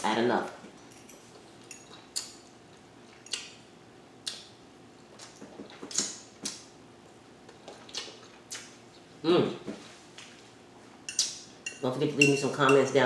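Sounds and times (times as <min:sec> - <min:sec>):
cutlery clinking on a plate: 0:11.1 - 0:13.0.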